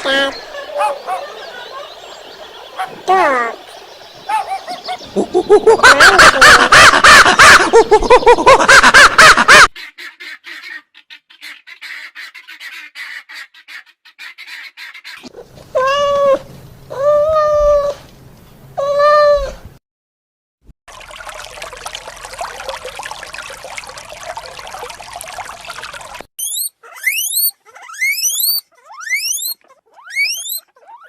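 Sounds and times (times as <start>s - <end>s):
drawn-out animal calls: 0.0s - 7.7s
chorus of animal calls: 0.0s - 16.3s, 26.5s - 31.0s.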